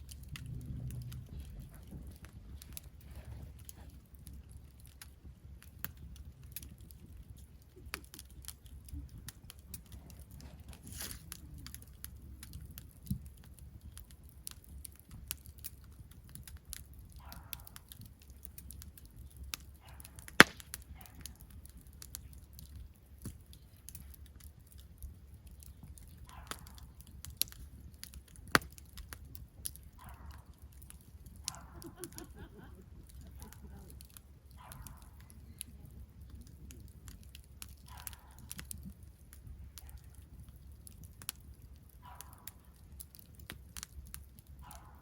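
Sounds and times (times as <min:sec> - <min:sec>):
faint low rumble: 0:00.0 - 0:05.2
campfire crackling: 0:00.0 - 0:45.0.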